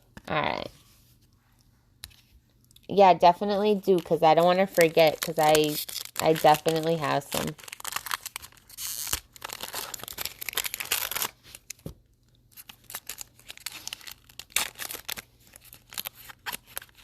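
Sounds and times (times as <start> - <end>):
foil wrapper crinkling and tearing: 3.5 - 11.9, 12.5 - 17.0
cards being handled: 3.7 - 12.0.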